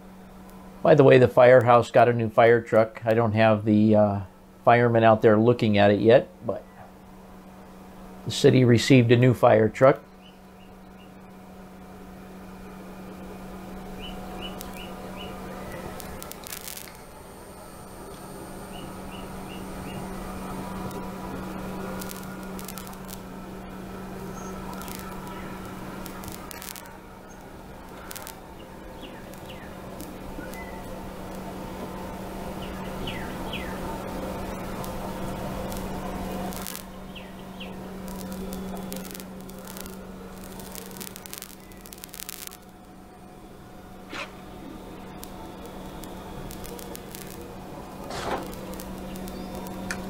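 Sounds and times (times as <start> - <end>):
drone propellers buzzing: 13.0 - 42.7, 43.3 - 50.0
faint high chirps: 24.2 - 31.0.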